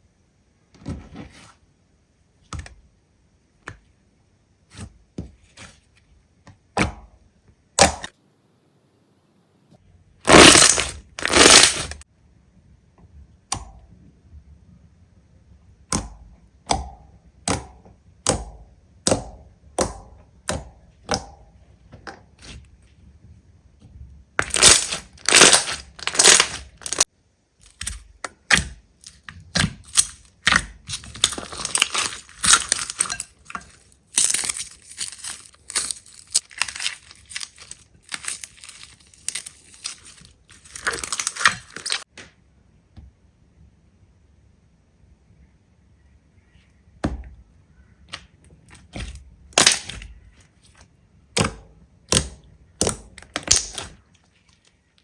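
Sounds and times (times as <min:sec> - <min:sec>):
slime crunching and crackling: 0:10.3 - 0:12.0, 0:24.4 - 0:42.1, 0:48.7 - 0:50.8, 0:52.1 - 0:54.8
slime clicking and popping: 0:52.1 - 0:54.0.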